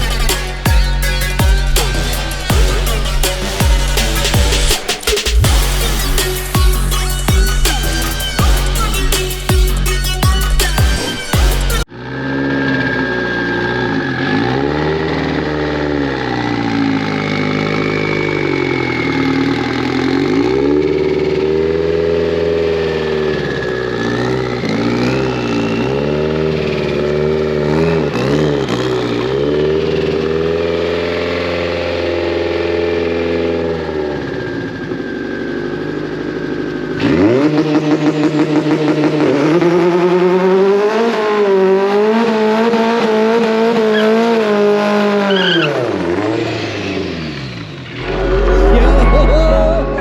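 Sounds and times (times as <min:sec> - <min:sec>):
background music: 0:00.0 - 0:11.9, 0:48.0 - 0:50.0
car engine revving: 0:00.0 - 0:17.6
thin high whine: 0:47.9 - 0:50.0.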